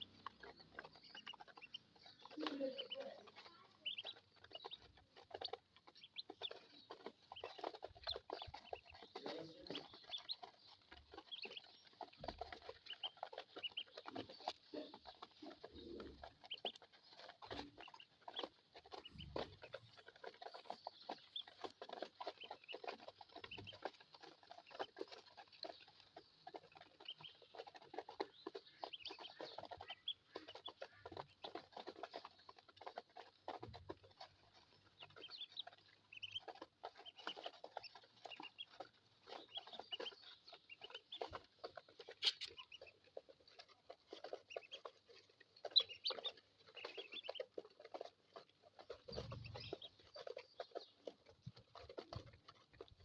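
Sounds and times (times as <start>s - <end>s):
ducklings peeping: 0.0s - 53.0s.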